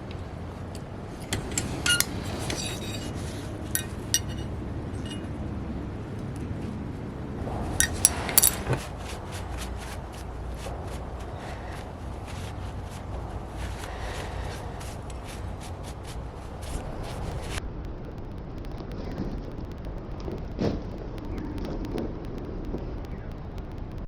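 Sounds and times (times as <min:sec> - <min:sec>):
small metal pieces clinking: 0:01.3 - 0:05.3, 0:07.8 - 0:10.2.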